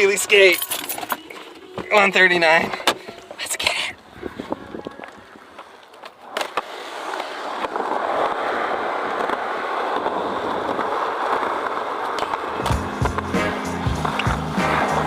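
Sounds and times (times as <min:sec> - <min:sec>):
skateboard wheels rolling on pavement: 0:04.0 - 0:15.0
skateboard clack: 0:05.2 - 0:15.0.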